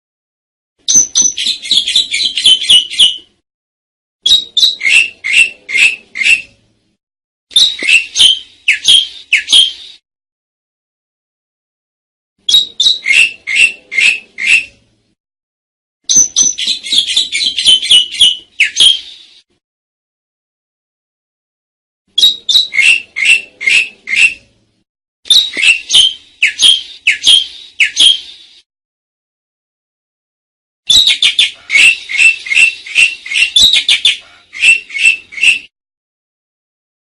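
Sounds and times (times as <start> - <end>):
starling calling high notes: 30.9 - 35.7.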